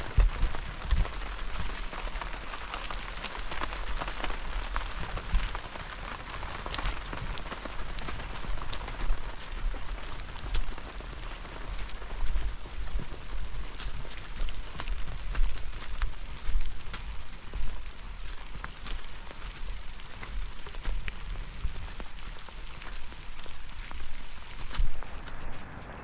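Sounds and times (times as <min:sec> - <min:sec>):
steady rain falling: 0:00.0 - 0:26.0
low rumble: 0:24.7 - 0:26.0.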